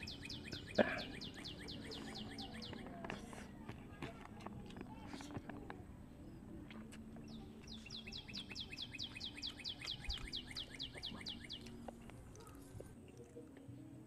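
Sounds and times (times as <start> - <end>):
bird trill: 0.0 - 3.0, 6.2 - 12.6.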